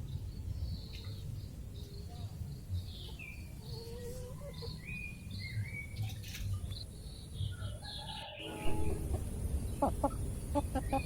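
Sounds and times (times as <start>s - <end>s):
birds chirping: 0.0s - 11.0s
low rumble: 8.5s - 11.0s.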